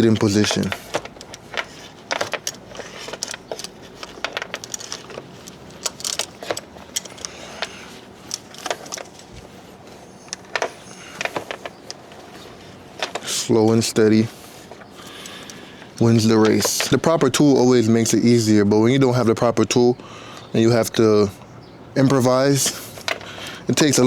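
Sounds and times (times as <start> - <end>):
metallic tool clicks and clinks: 0.1 - 9.2.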